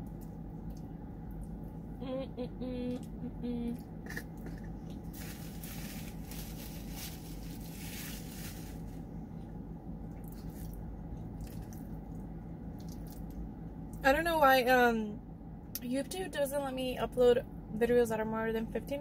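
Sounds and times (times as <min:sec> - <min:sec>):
steady low hum: 0:00.0 - 0:19.0
paper napkin rustling: 0:05.1 - 0:09.1.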